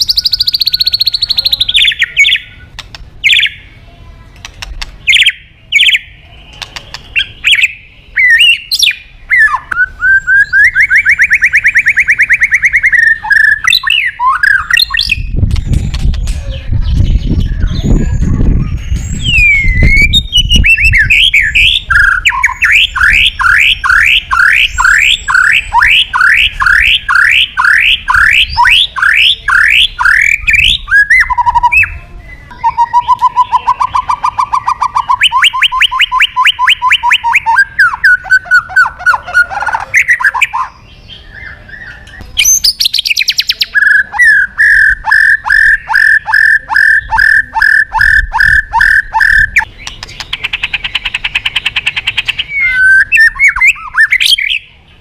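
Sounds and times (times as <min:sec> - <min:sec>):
bird singing varied song: 0:00.0 - 0:55.0.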